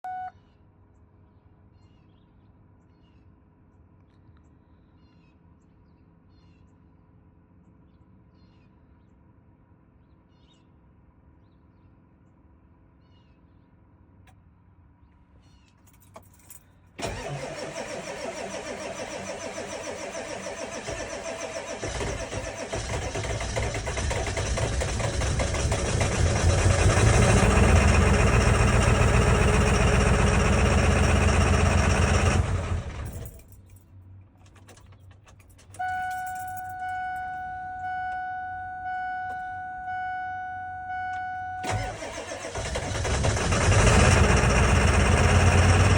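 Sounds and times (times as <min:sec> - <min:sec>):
diesel engine starting and running: 0:17.0 - 0:33.6, 0:34.4 - 0:45.9.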